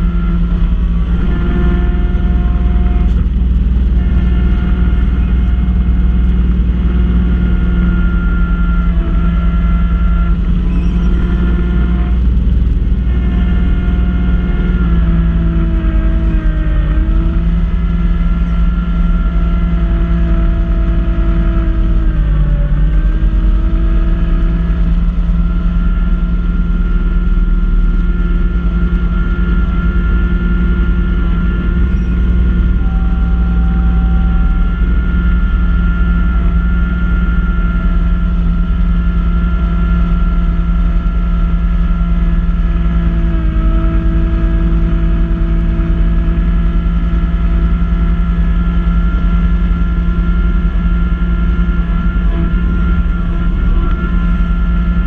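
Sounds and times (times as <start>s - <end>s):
tractor diesel engine at high throttle: 0.0s - 55.0s.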